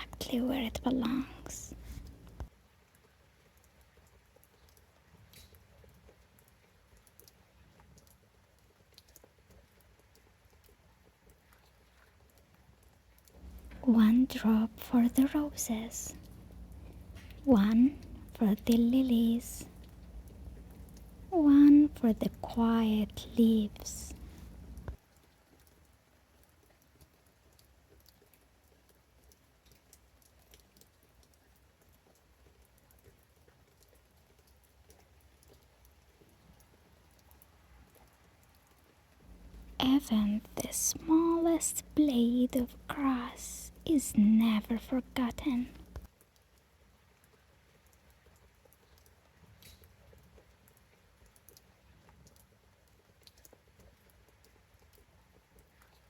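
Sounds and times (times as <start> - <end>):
low steady rumble: 0.0 - 2.5, 13.4 - 25.0, 39.2 - 46.1
low steady background hum: 0.0 - 56.0
raindrops ticking: 0.0 - 56.0.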